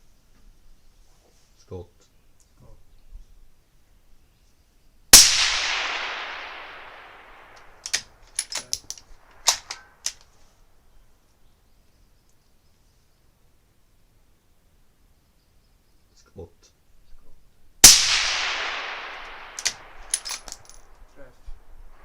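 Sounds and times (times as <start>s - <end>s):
suppressed rifle shot echoing: 5.1s - 10.1s, 17.8s - 21.0s
rifle bolt clicks: 7.5s - 10.3s, 18.7s - 20.8s.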